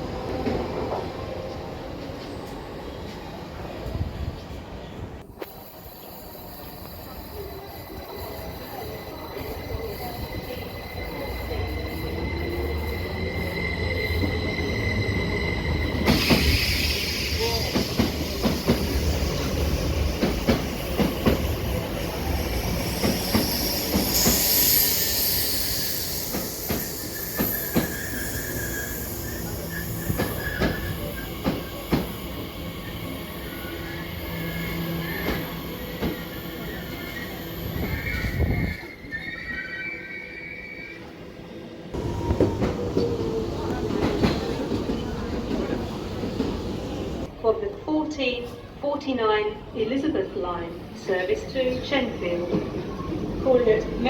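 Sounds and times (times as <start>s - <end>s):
train rumble: 0.0s - 39.7s, 41.0s - 47.4s
high wheel squeal: 5.4s - 41.3s.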